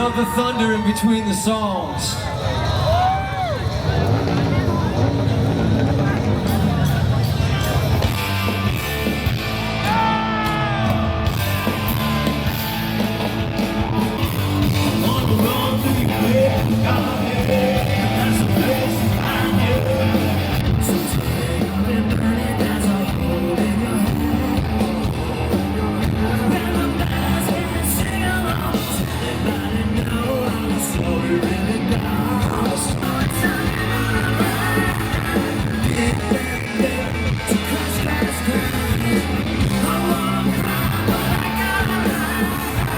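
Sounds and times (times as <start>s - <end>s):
live rock band playing: 2.2s - 42.9s
person singing: 14.8s - 42.9s.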